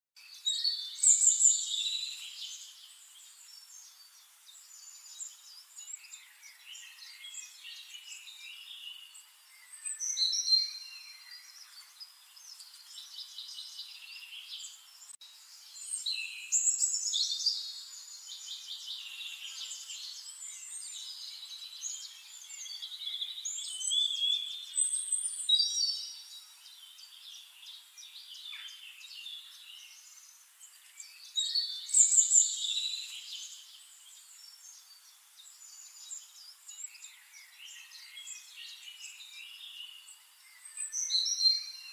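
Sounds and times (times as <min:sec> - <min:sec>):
birds chirping and trilling: 0:00.2 - 0:41.9.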